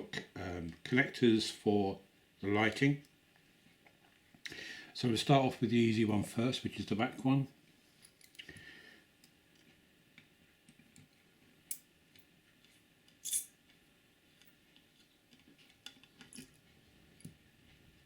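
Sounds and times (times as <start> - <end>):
small clicks and taps of tools: 9.2 - 13.2.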